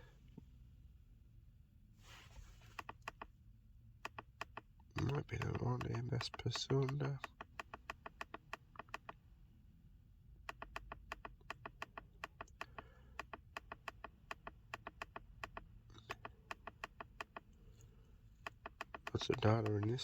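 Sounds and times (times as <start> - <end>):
low steady hum: 0.0 - 20.0
rapid faint clicking: 4.0 - 9.2, 10.5 - 20.0.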